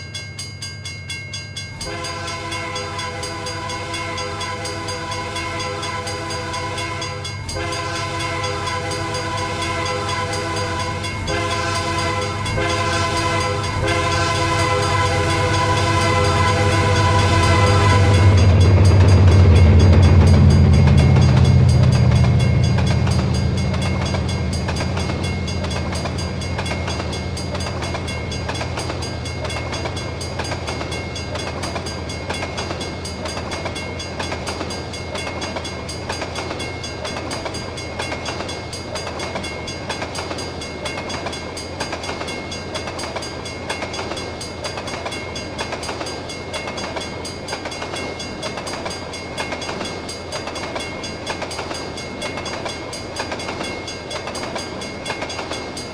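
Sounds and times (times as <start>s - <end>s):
diesel locomotive rumble: 1.8s - 40.6s
train wheel clatter: 1.8s - 55.9s.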